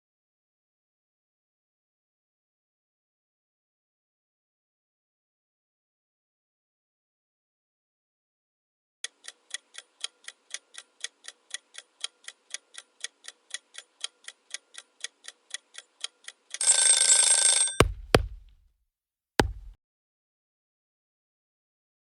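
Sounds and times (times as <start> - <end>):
sharp hits: 17.8 - 18.5
clock ticking: 19.4 - 19.7.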